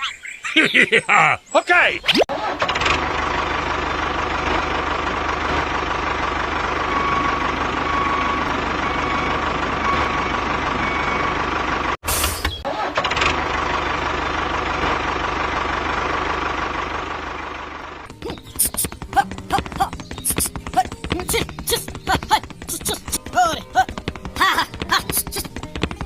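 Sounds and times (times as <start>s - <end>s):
tractor engine running: 2.3s - 26.0s.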